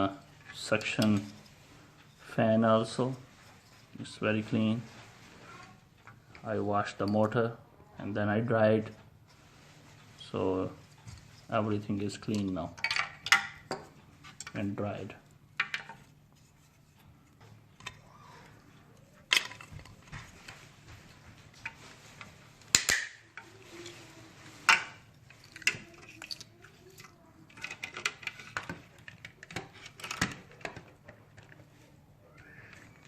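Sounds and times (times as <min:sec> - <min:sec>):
plastic parts clicking and knocking: 0:12.0 - 0:18.0, 0:19.1 - 0:20.7, 0:21.4 - 0:24.0, 0:24.6 - 0:31.8.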